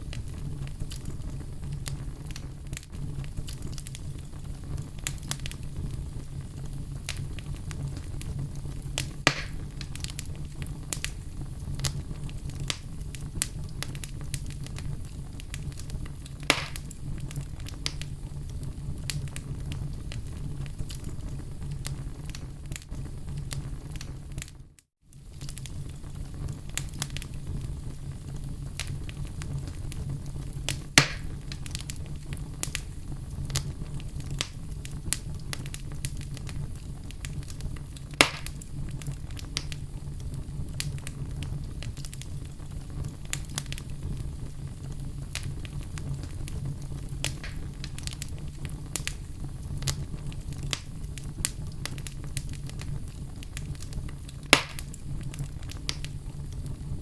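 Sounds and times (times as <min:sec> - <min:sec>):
fire crackling: 0:00.0 - 0:57.0
low rumble of flames: 0:00.0 - 0:57.0
sharp wood pops: 0:09.3 - 0:09.6, 0:16.5 - 0:16.9, 0:31.0 - 0:31.3, 0:38.2 - 0:38.6, 0:54.5 - 0:54.9.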